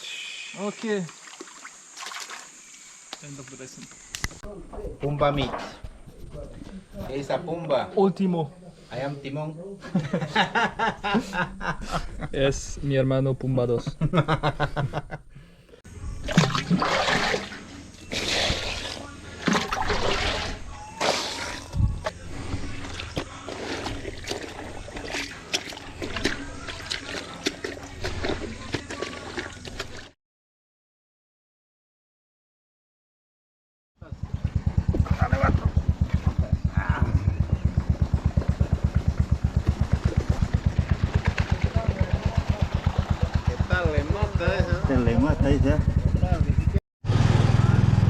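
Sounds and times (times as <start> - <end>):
water splashing and sloshing: 0.9 - 3.0, 16.2 - 30.2, 39.7 - 43.9
small engine thumping: 34.3 - 46.6.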